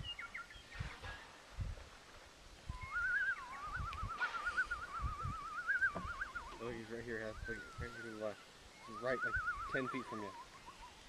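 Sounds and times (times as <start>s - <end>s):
warbling whistle: 2.7s - 6.7s, 8.8s - 10.1s.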